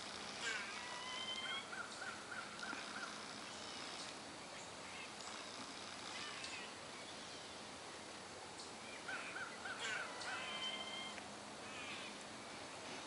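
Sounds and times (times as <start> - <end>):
steady outdoor hiss: 0.0 - 13.0
wild birds calling: 0.0 - 13.0.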